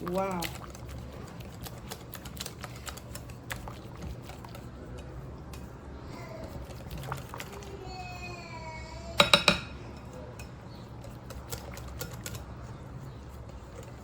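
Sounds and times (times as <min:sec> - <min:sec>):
batter stirred in a bowl: 0:00.0 - 0:08.4, 0:09.2 - 0:14.0
utensil tapping a bowl: 0:09.2 - 0:10.6.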